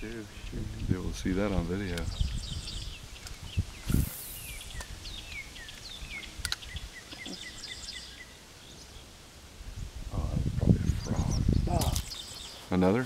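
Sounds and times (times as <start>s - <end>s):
outdoor background noise: 0.0s - 13.0s
songbirds chirping: 0.0s - 13.0s
thump with a hiss: 3.8s - 4.9s
sharp click: 6.4s - 6.7s.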